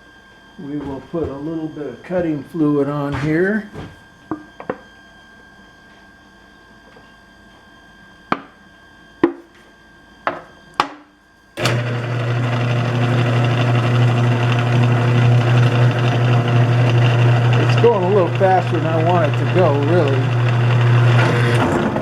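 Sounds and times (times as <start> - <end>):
drill press motor humming: 11.6 - 22.0.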